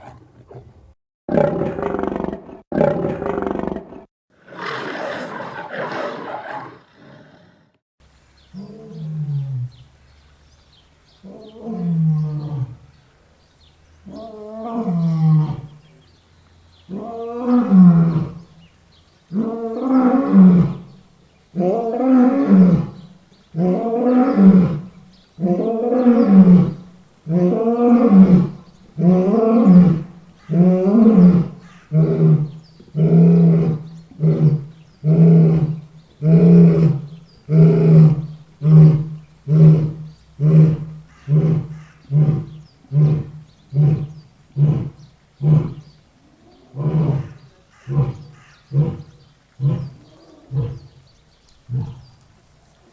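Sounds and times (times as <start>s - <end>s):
lion roaring: 0.0s - 7.8s.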